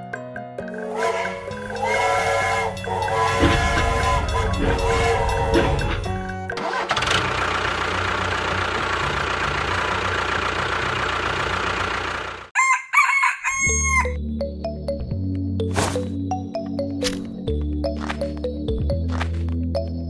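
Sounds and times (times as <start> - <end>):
small engine running: 0.7 - 12.5
rooster crowing: 0.8 - 6.3, 12.6 - 14.2.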